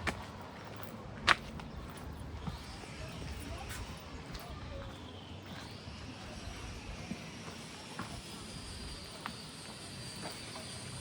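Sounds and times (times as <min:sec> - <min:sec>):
footsteps on pavement: 0:00.0 - 0:11.0.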